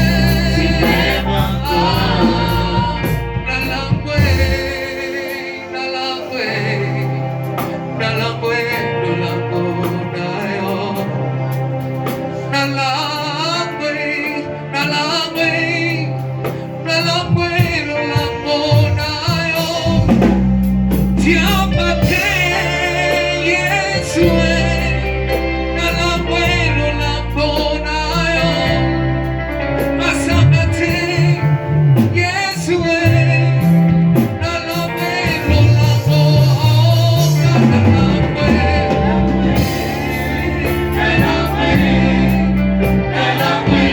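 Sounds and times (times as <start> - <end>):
deep bass line: 0.0 - 5.8, 14.8 - 43.9
instrumental backing: 0.0 - 43.9
voices singing gospel: 0.0 - 43.9.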